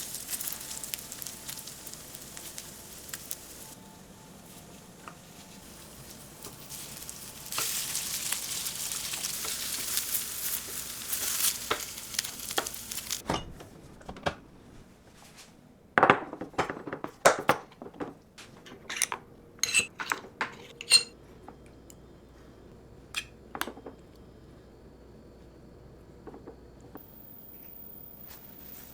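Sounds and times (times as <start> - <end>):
food sizzling in frying pan: 0.0 - 3.8, 4.4 - 13.2
utensils clinking against pan: 18.6 - 21.2.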